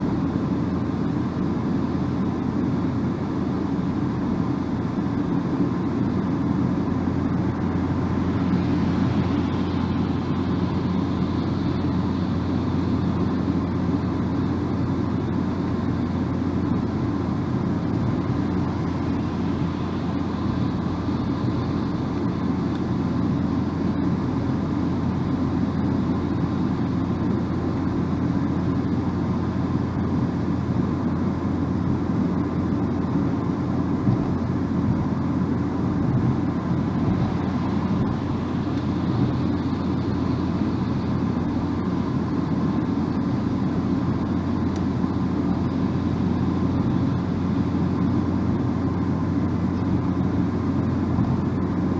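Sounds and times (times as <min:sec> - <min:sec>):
even hum: 0:00.0 - 0:51.9
tyre and road rumble: 0:32.4 - 0:51.9.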